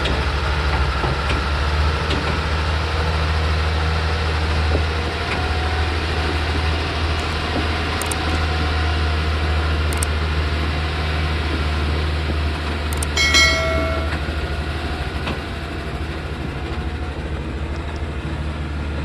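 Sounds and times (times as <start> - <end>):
short high-pitched tone: 13.2 - 14.3.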